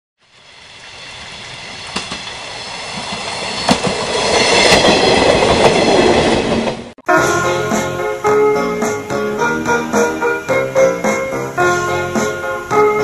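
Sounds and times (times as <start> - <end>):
electric train running on track: 0.2 - 13.0
wheels clicking over rail joints: 1.7 - 6.9.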